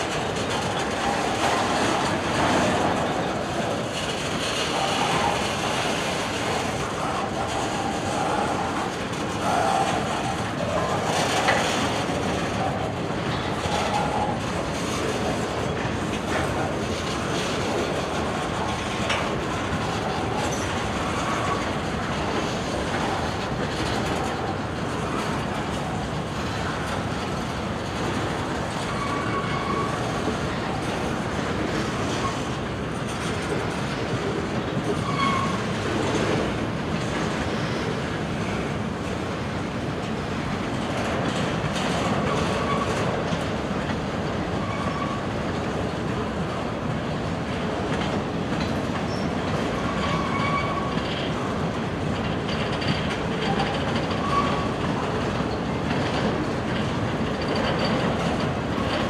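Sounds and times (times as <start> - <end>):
train wheels rumbling on rail: 0.0 - 59.0
wheels clacking over rail joints: 0.0 - 59.0
wheel squeals: 28.8 - 30.3, 34.8 - 35.7, 44.5 - 45.3, 49.1 - 51.2, 53.5 - 54.8.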